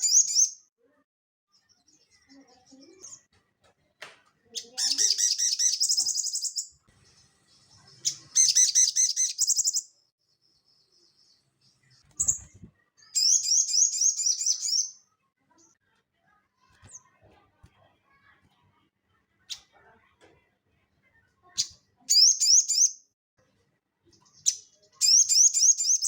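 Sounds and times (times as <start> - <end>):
bird chattering trills: 4.6 - 6.7.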